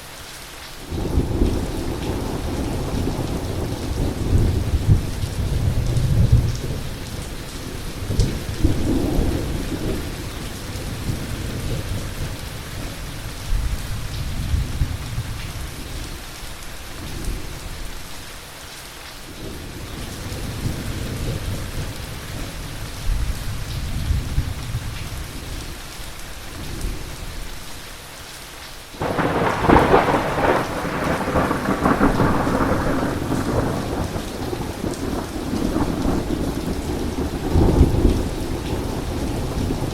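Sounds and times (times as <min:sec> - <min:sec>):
steady rain: 0:00.0 - 0:39.9
sharp thunderclap: 0:29.0 - 0:39.9
thunder rumbling: 0:29.0 - 0:39.9.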